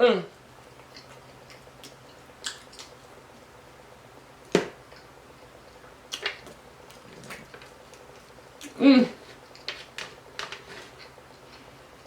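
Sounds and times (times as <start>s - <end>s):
chewing and eating sounds: 0.6s - 3.5s, 4.4s - 12.0s
wet mouth clicks and smacks: 0.8s - 3.0s.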